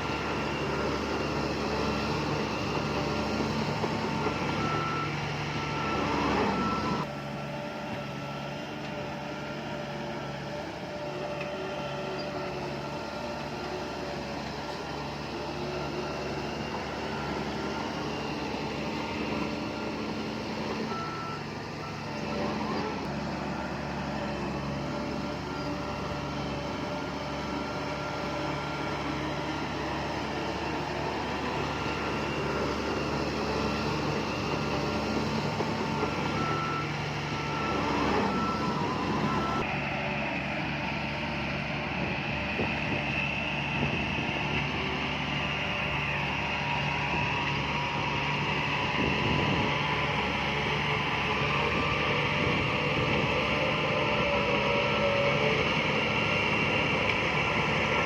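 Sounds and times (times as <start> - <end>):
reversing alarm beeping: 0.0 - 7.1, 15.2 - 39.7
heavy diesel machinery running: 0.0 - 58.0.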